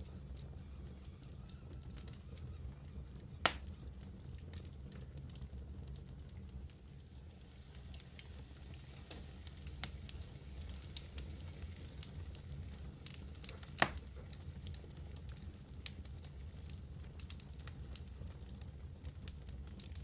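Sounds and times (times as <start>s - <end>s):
fire crackles: 0.0s - 20.0s
wood fire roaring: 0.0s - 20.0s
wood fire sharp pop: 3.4s - 3.8s, 13.1s - 14.4s.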